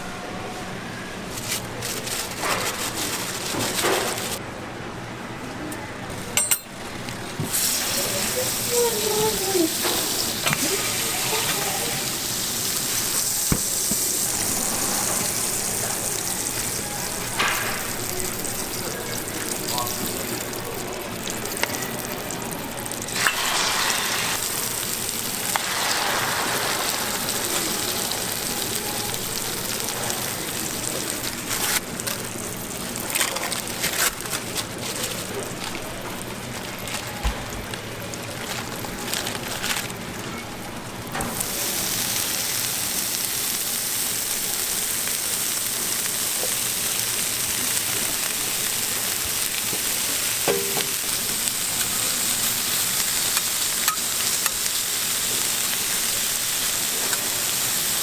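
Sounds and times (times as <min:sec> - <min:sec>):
food sizzling on a griddle: 0:02.1 - 0:04.4, 0:07.4 - 0:40.2, 0:41.2 - 0:58.0.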